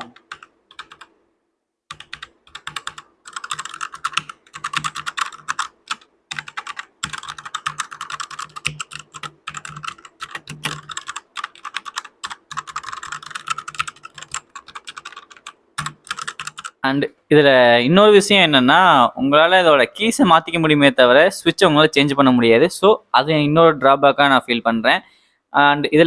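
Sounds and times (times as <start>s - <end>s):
fast typing on mechanical keyboard: 0.0s - 1.1s, 1.9s - 16.8s.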